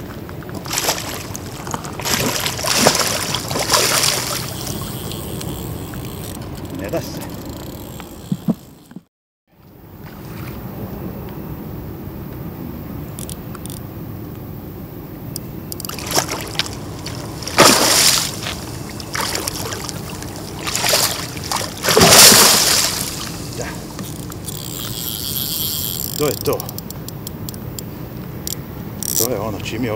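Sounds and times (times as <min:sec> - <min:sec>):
fish splashing in water: 0:00.5 - 0:06.0, 0:15.9 - 0:26.3.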